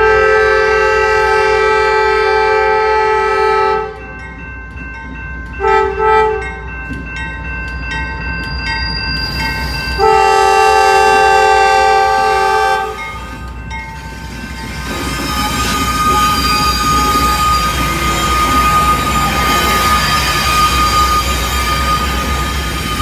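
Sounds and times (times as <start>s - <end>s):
locomotive air horn blasts: 0.0s - 4.0s, 10.0s - 13.2s
low rumble of train: 0.0s - 23.0s.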